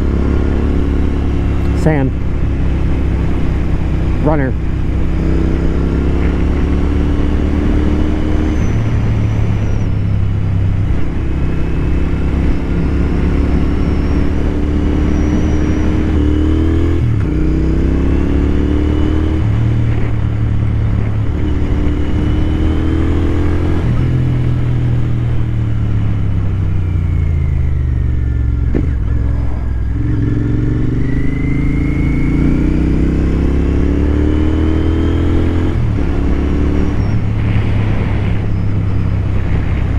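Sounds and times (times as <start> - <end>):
motorcycle engine accelerating: 0.0 - 39.9
wind noise on microphone: 34.9 - 39.9.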